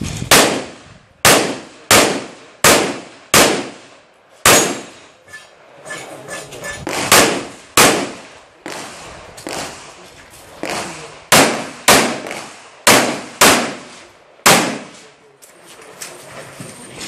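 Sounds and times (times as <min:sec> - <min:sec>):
pistol shots: 0:00.3 - 0:05.1, 0:06.8 - 0:10.0, 0:10.6 - 0:15.0.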